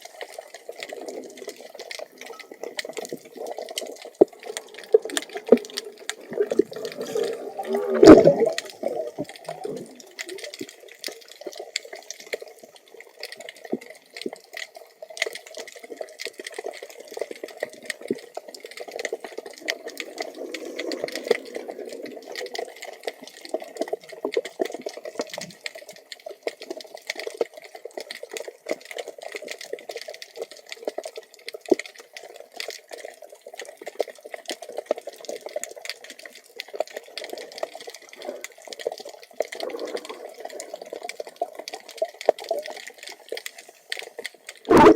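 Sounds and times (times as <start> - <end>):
muffled underwater water noise: 0.0 - 44.9
scattered underwater clicks and crackles: 0.0 - 44.9
loud underwater burst: 6.2 - 9.8, 44.7 - 44.9.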